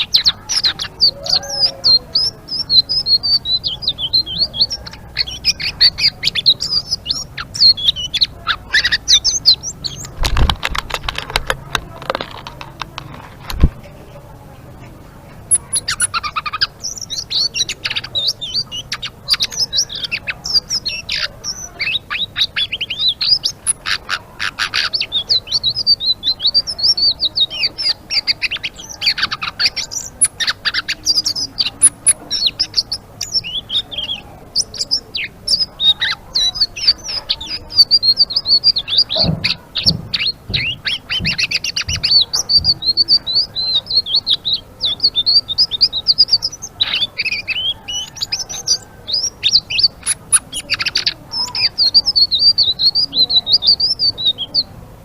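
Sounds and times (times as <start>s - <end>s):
songbird twittering: 0.0s - 12.6s, 14.8s - 54.8s.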